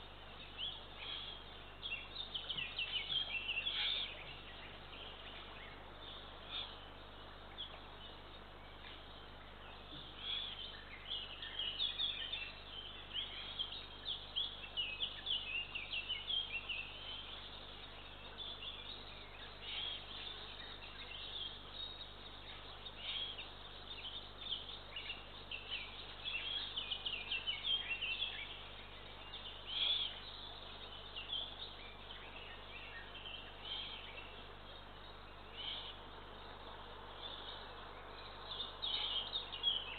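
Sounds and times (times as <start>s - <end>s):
low electrical hum: 0.0s - 39.9s
songbirds chirping: 0.0s - 39.9s.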